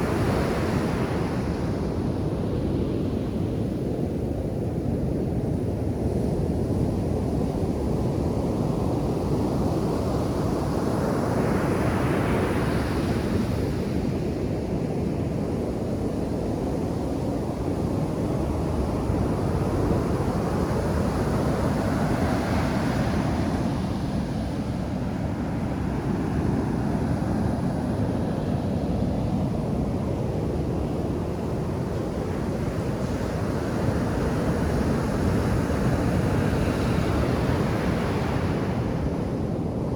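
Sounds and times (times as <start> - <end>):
ocean surf on sandy beach: 0.0 - 3.7, 16.1 - 39.9.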